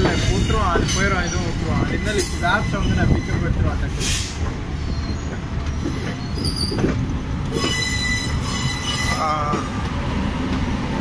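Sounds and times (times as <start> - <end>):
train knocks: 0.0 - 11.0
wheels rumbling on rails: 0.0 - 11.0
faint high wheel squeal: 0.9 - 6.9, 7.5 - 9.4.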